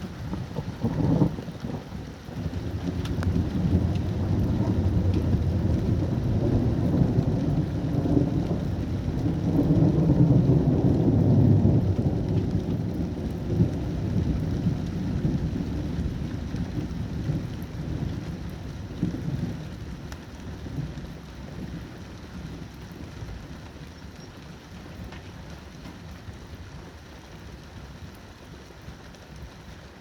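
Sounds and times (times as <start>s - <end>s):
rolling thunder: 0.0s - 19.9s
rain falling: 0.0s - 30.0s.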